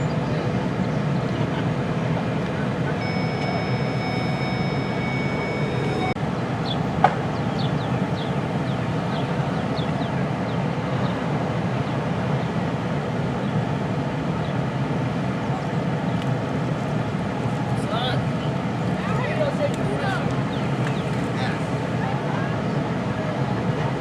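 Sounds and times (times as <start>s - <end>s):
faint high steady tone: 2.9s - 6.2s.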